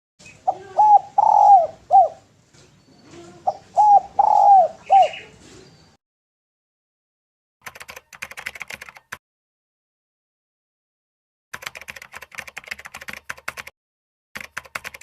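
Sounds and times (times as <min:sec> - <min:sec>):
dove cooing: 0:00.3 - 0:02.3, 0:03.0 - 0:05.7.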